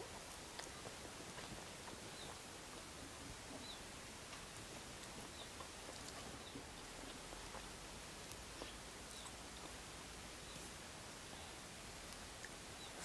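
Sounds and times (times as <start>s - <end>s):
chewing and lip smacks: 0.0s - 9.8s.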